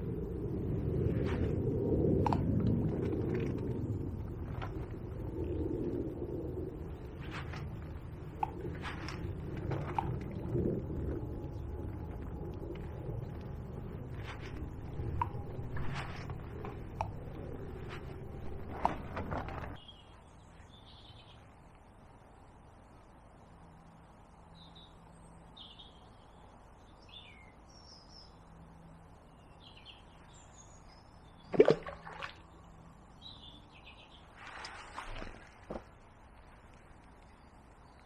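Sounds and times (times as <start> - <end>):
small birds chirping: 2.3 - 21.7, 32.4 - 34.7
handling noise: 14.0 - 19.8.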